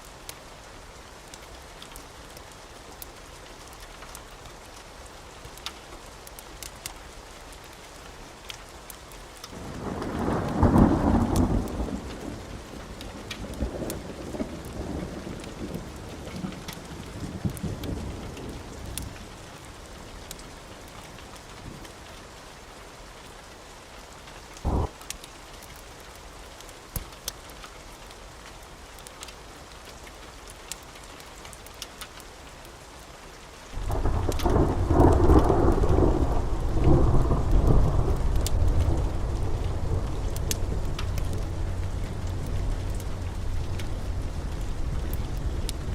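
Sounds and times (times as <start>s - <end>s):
wood fire crackling: 0.1s - 22.4s, 23.5s - 45.9s
deep rumbles: 35.8s - 45.9s.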